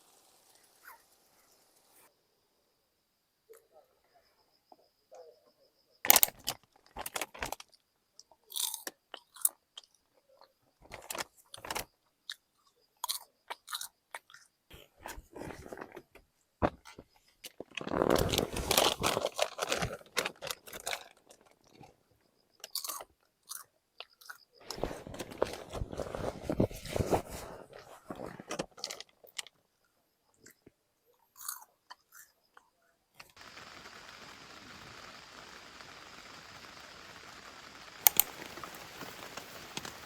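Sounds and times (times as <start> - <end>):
crunchy food being chewed: 8.4 - 16.0, 17.4 - 22.0, 22.6 - 26.6, 30.4 - 32.6.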